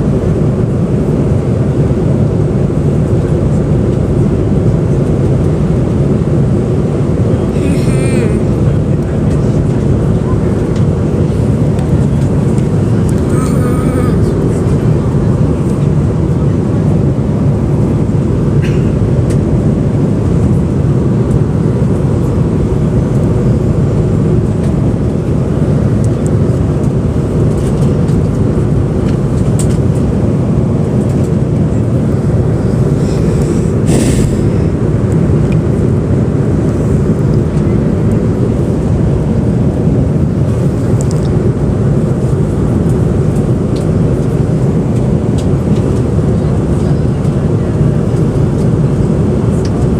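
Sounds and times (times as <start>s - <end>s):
airliner cabin engine noise: 0.0s - 49.9s
short hiss: 33.9s - 34.4s.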